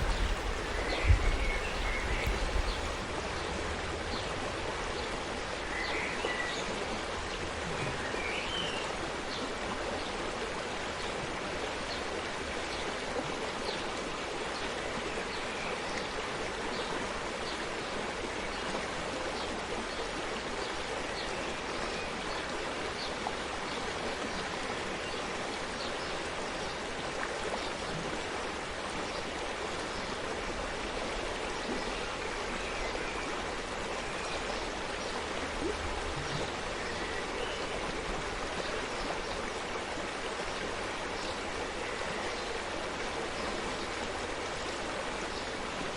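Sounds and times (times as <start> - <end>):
stream babbling over stones: 0.0 - 3.0.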